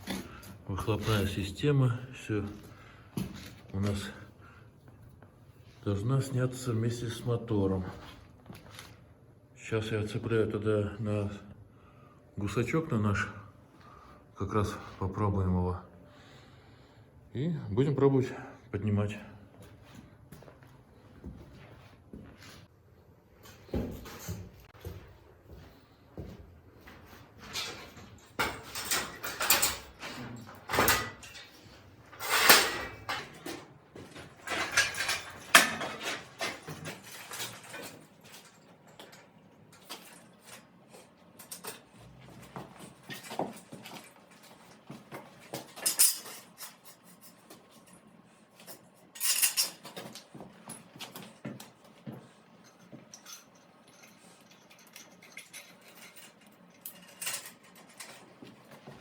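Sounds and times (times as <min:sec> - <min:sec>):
metal clanks and clinks: 0:27.4 - 0:44.7, 0:45.4 - 0:48.0, 0:48.6 - 0:51.7, 0:52.6 - 0:59.0.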